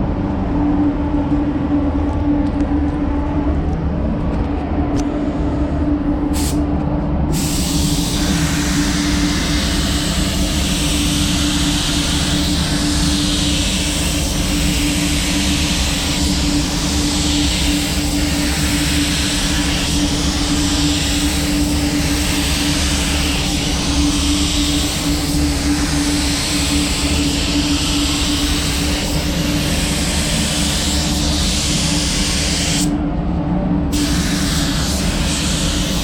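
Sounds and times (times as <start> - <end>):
ventilation hum: 0.0 - 36.0
spray gun hissing: 6.4 - 6.6, 7.3 - 32.9, 33.9 - 36.0.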